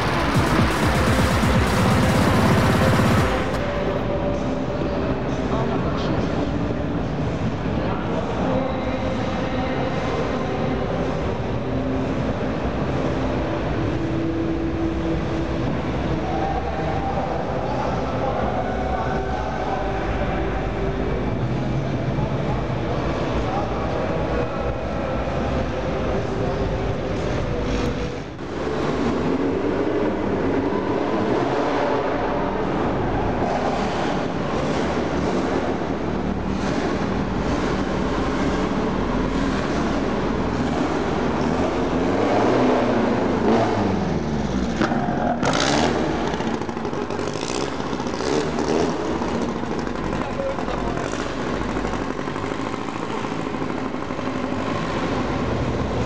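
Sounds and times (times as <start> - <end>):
engine pitch rising and falling: 0.0 - 6.1
cars driving slowly past: 0.0 - 56.0
crowd chatter: 0.0 - 56.0.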